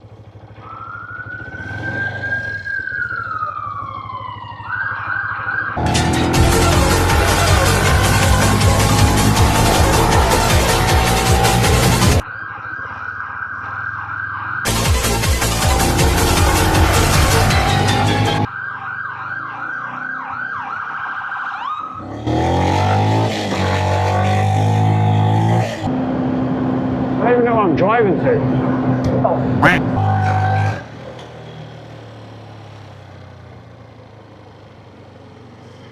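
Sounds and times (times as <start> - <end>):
motorcycle engine accelerating: 0.0 - 12.2, 14.7 - 20.8, 21.9 - 27.2, 28.5 - 35.9
siren wailing: 0.5 - 25.9, 29.6 - 30.9
loud music: 5.8 - 12.2, 14.7 - 18.5.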